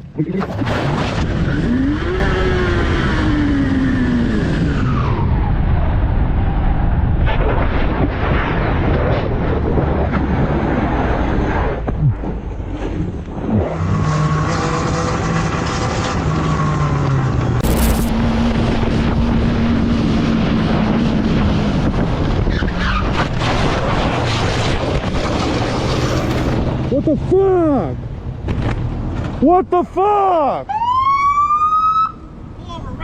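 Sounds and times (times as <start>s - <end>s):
wind noise: 0.0s - 13.8s, 15.0s - 27.0s
brief sharp sound: 17.6s - 18.1s.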